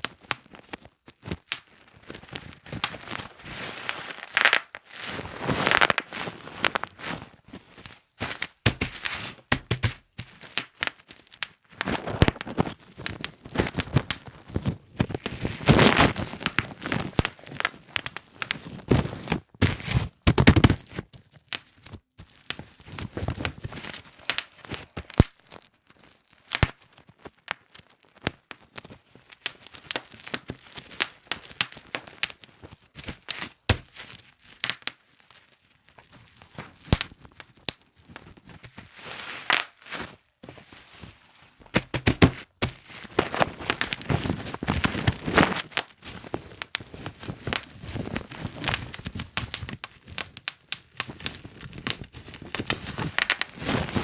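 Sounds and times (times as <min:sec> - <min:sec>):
bubble wrap popping: 0:00.0 - 0:54.0
plastic crinkling: 0:00.0 - 0:54.0.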